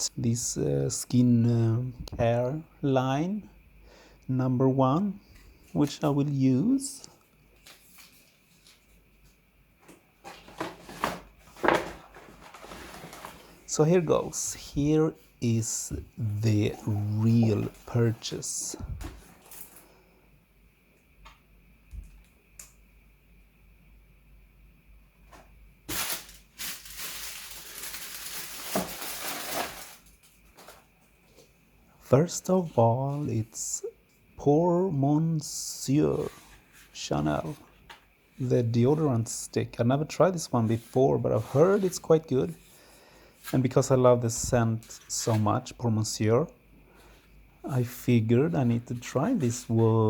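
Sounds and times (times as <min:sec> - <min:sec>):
packaging rustling and knocking: 0:09.8 - 0:13.6, 0:25.3 - 0:30.9.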